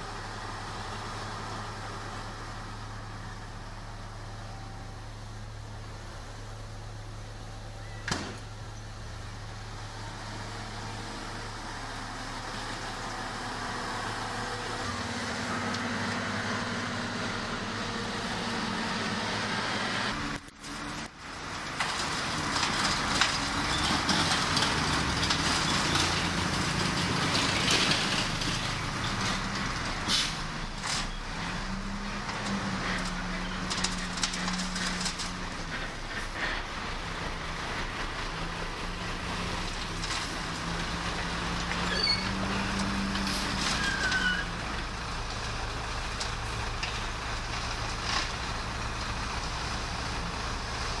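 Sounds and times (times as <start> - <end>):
diesel machinery running: 0.0 - 51.0.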